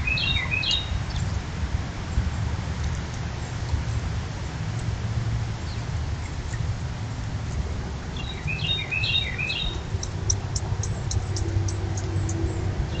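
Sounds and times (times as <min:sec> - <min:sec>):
songbird twittering: 0:00.0 - 0:01.2, 0:08.2 - 0:13.0.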